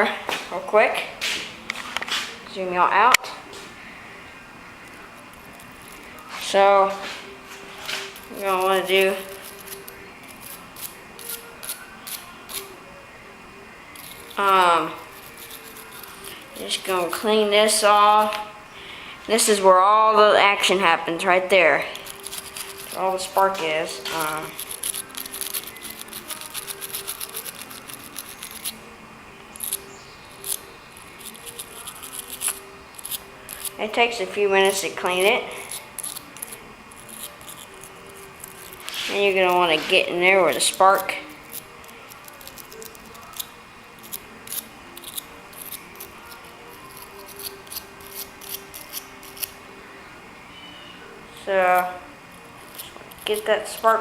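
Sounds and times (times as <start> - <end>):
wire brush scratching metal: 4.8 - 12.8, 13.9 - 18.6, 19.3 - 28.9, 29.5 - 49.7, 50.9 - 54.0.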